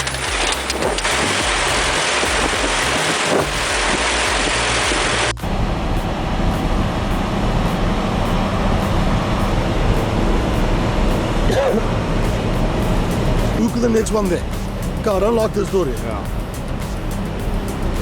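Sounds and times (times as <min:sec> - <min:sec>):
deep engine sound: 0:00.0 - 0:18.0
loud noisy rush: 0:00.0 - 0:18.0.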